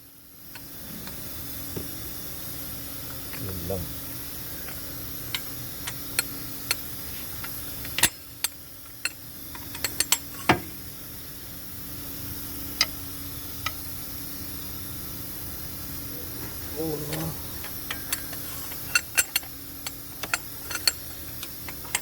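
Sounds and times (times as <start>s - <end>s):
faint steady hum: 0.0s - 22.0s
hand tools clicking and knocking: 16.9s - 22.0s.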